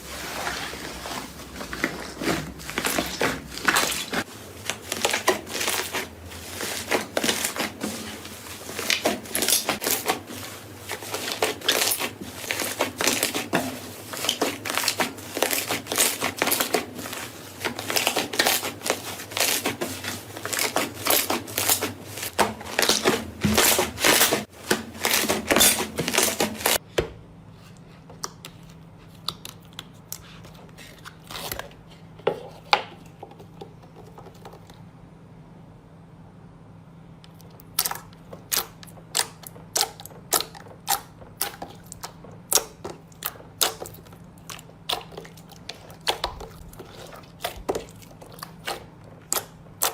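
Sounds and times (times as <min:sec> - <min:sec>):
crunchy material crushed by hand: 0:00.2 - 0:26.8.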